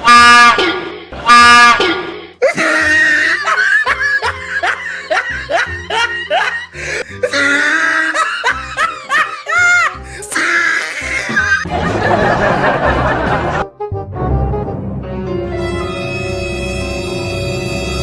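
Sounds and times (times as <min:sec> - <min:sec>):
comic music: 0:00.0 - 0:18.0
laughter: 0:03.0 - 0:06.8, 0:07.8 - 0:09.9, 0:11.3 - 0:13.6
train horn blast: 0:15.6 - 0:18.0.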